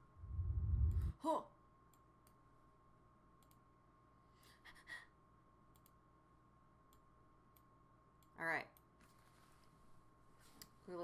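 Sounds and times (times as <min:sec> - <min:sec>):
soft clicks: 0:03.4 - 0:03.7, 0:05.7 - 0:06.0.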